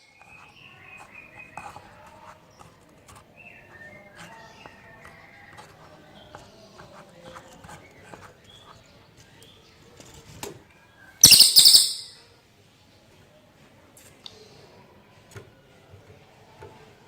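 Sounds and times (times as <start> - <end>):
loud harsh bird call: 11.2 - 12.2
songbird chirping: 11.2 - 12.2.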